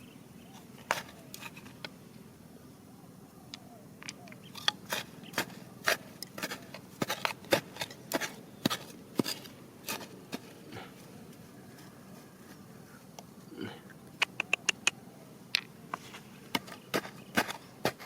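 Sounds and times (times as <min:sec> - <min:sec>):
tool knocking on stones: 0:04.0 - 0:10.5, 0:16.5 - 0:18.0.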